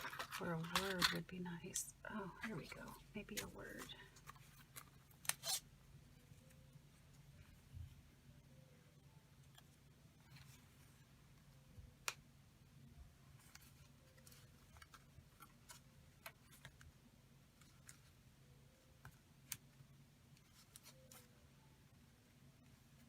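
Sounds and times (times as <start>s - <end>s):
paper and tools clicking: 0.0s - 1.2s
low steady hum: 0.0s - 23.0s.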